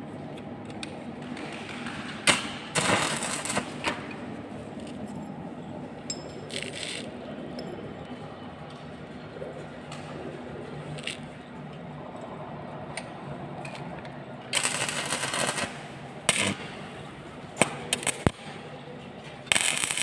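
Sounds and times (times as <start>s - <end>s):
welding arc crackling: 1.4s - 4.0s, 14.5s - 18.4s, 19.5s - 20.0s
steady low hum: 2.2s - 20.0s.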